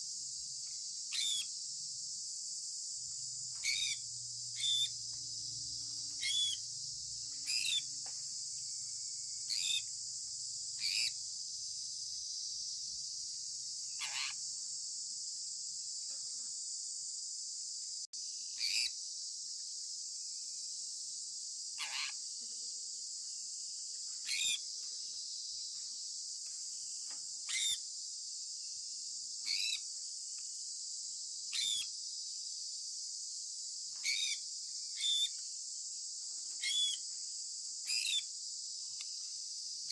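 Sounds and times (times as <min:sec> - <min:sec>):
parrot chirping: 0:03.6 - 0:04.0, 0:04.6 - 0:04.9, 0:06.2 - 0:06.6, 0:07.4 - 0:07.9, 0:14.0 - 0:14.4.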